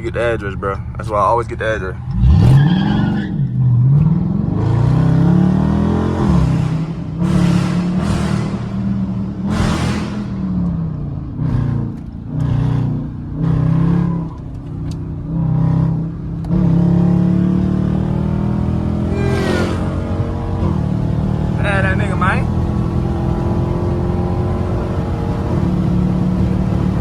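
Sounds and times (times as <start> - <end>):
car engine and exhaust: 0.0 - 27.0
whooshes of passing traffic: 18.8 - 21.5.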